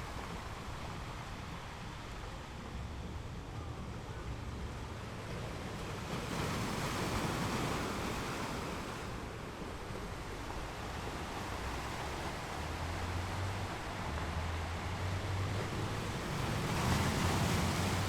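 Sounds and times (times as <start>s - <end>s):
low rumble of surf: 0.0s - 18.0s
ocean waves breaking: 5.0s - 18.0s.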